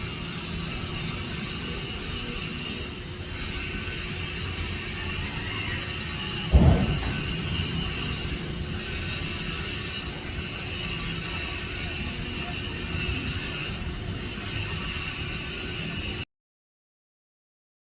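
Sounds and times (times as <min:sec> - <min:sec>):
loud low thump: 0:06.5 - 0:07.9.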